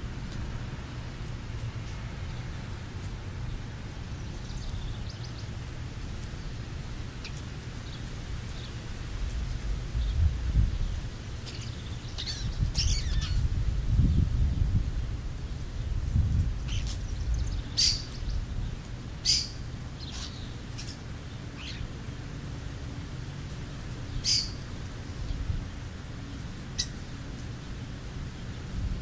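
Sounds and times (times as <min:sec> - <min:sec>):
bird chirping: 0:11.4 - 0:13.4, 0:19.2 - 0:21.0.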